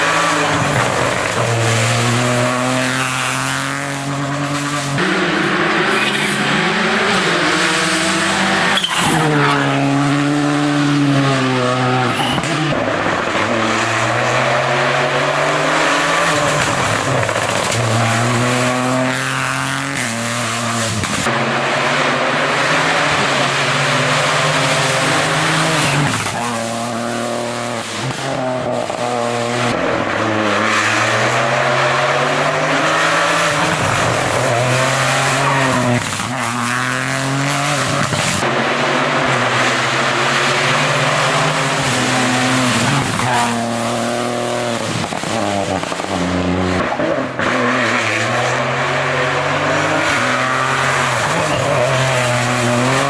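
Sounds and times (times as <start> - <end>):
rally car engines racing: 0.0 - 53.0.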